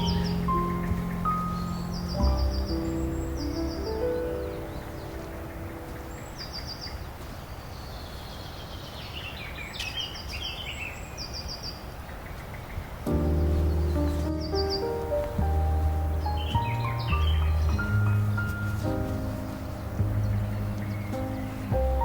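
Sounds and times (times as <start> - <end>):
background music: 0.0 - 6.4, 13.1 - 22.0
birds chirping: 0.0 - 22.0
steady background hiss: 0.0 - 22.0.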